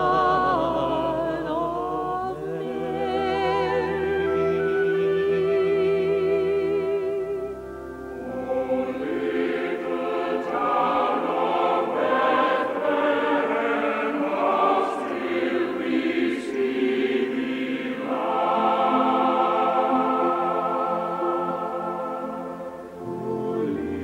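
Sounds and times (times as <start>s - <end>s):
choir singing: 0.0s - 24.0s.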